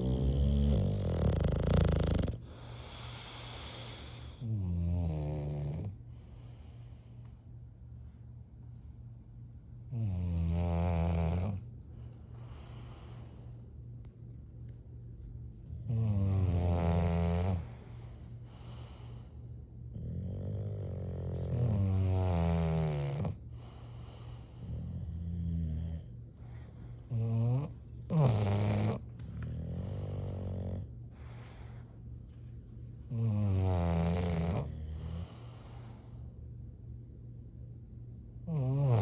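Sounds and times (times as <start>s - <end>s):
dog snoring: 0.0s - 7.4s, 9.8s - 13.6s, 15.6s - 32.4s, 33.1s - 36.4s, 38.4s - 39.0s
dog breathing: 0.0s - 7.6s, 10.9s - 13.8s, 15.7s - 36.4s.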